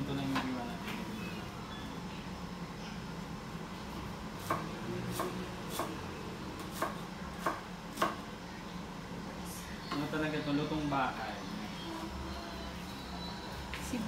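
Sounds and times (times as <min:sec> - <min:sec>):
knife slicing onion on cutting board: 0:04.4 - 0:06.0, 0:06.6 - 0:08.2.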